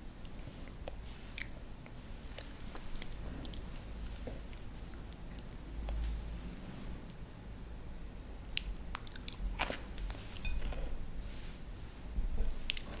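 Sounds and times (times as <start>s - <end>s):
low steady hum: 0.0s - 13.0s
chewing crunchy vegetables: 8.6s - 10.9s, 12.4s - 13.0s.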